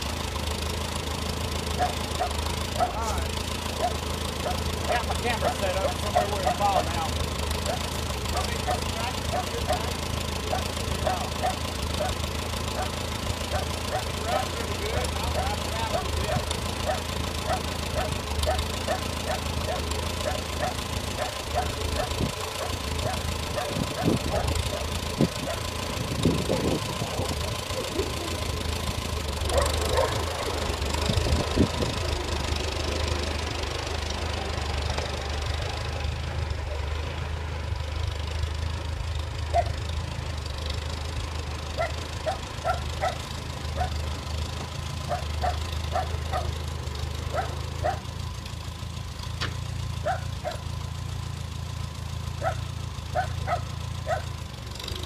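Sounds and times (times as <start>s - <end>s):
tractor engine idling: 0.0s - 55.0s
dog barking: 1.8s - 3.2s, 3.8s - 7.0s, 7.7s - 9.9s, 10.5s - 12.2s, 12.8s - 25.7s, 29.5s - 30.6s, 39.5s - 39.8s, 41.8s - 43.2s, 43.8s - 44.0s, 45.1s - 46.6s, 47.3s - 48.1s, 50.0s - 50.7s, 52.4s - 54.3s.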